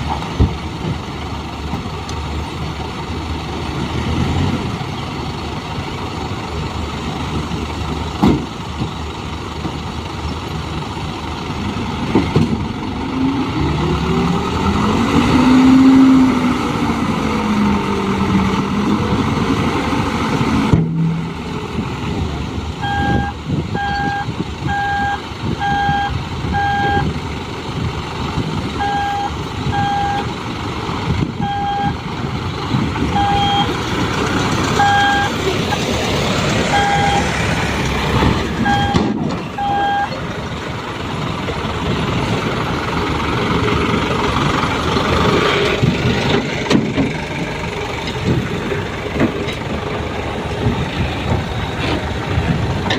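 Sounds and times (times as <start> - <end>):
truck engine running: 0.0 - 52.9
truck reversing alarm beeping: 22.8 - 27.1, 28.8 - 30.3, 31.4 - 32.0, 33.1 - 33.8, 34.7 - 35.8, 36.6 - 37.3, 38.5 - 40.2.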